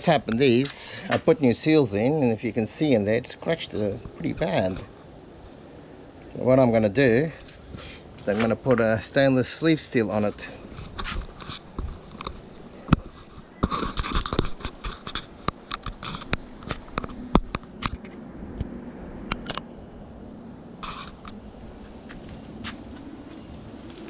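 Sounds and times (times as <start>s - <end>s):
metal scraping: 20.8s - 21.4s.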